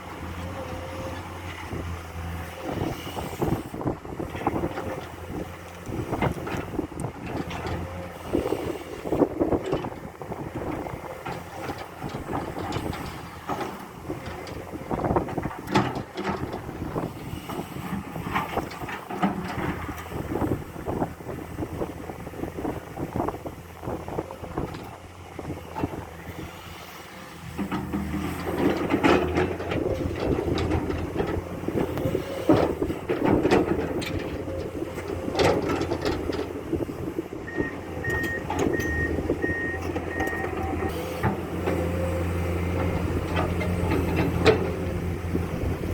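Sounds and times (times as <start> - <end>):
excavator diesel engine: 0.0 - 45.9
warning alarm beeps: 37.5 - 40.5.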